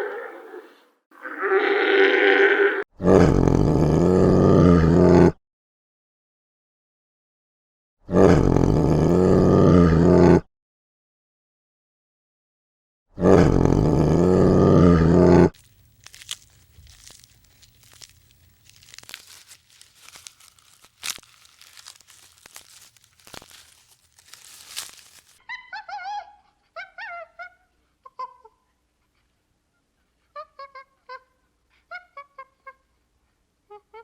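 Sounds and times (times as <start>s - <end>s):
large animal roaring: 13.2s - 15.6s
faint crunching and rustling: 15.6s - 25.4s.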